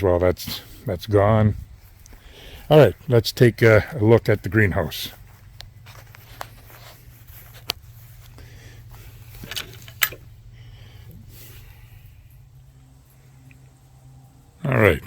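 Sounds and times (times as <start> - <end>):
low steady hum: 0.0 - 15.0
clicks and knocks of handling: 9.3 - 10.3.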